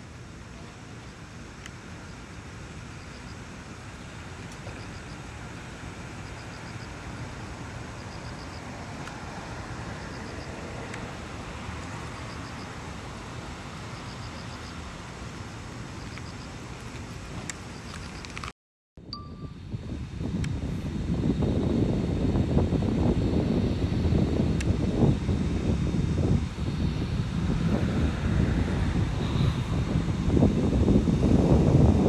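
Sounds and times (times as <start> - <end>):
steady outdoor rushing noise: 0.0 - 18.5, 19.7 - 32.0
faint high ticks: 16.0 - 18.5.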